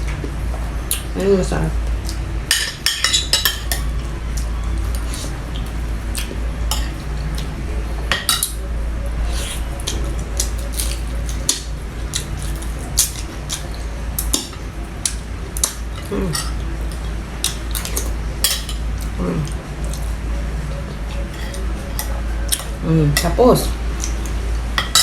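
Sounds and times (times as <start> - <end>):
steady low hum: 0.0 - 25.0
utensils clinking on plate: 2.5 - 3.9, 9.4 - 19.1, 20.8 - 23.4, 24.0 - 25.0.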